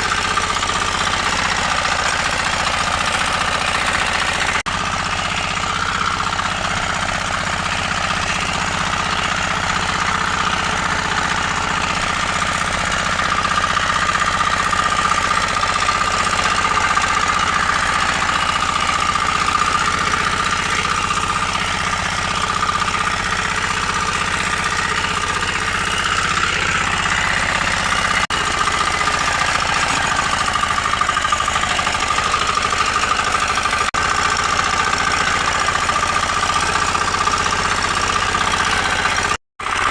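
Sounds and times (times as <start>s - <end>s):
power weeder engine running: 0.0s - 39.9s.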